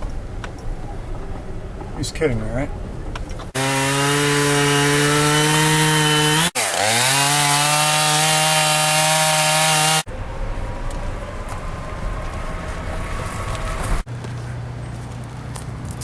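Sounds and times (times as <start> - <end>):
chainsaw running: 3.5 - 10.0.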